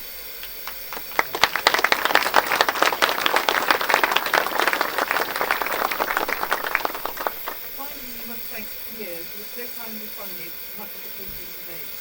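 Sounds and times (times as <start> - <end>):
audience applauding: 0.4 - 8.9.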